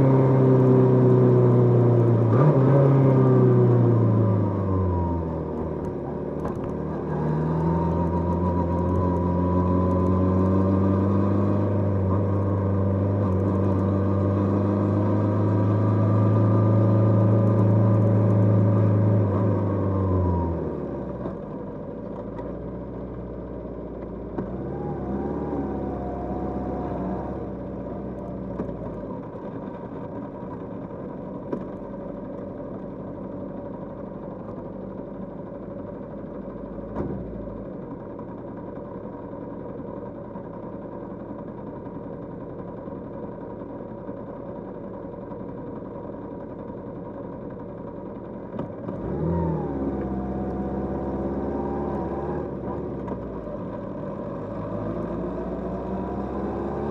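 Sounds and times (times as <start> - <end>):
motorcycle engine under throttle: 0.0 - 56.9.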